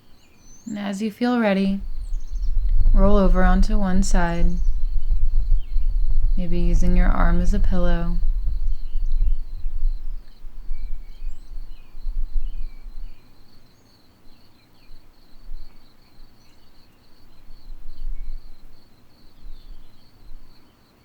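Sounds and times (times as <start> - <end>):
low rumble: 0.8 - 11.6.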